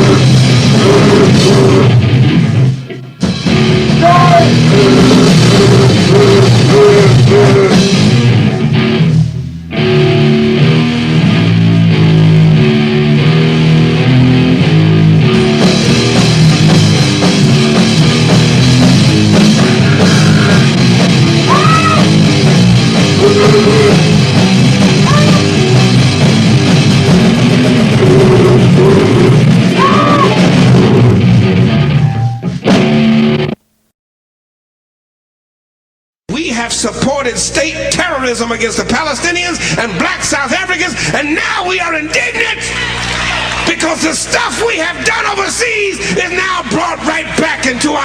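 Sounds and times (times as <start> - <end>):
punk band playing: 0.0 - 33.6, 36.3 - 48.0
wailing pitch glides: 25.1 - 25.6.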